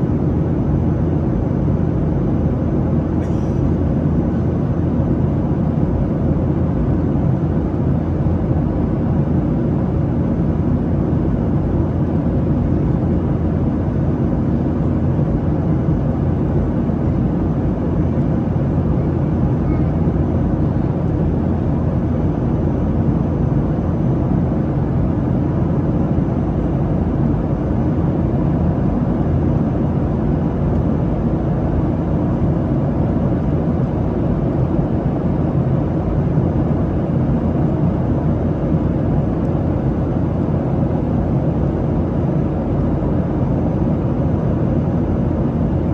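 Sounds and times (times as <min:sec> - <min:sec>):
airliner cabin engine rumble: 0:00.0 - 0:45.9.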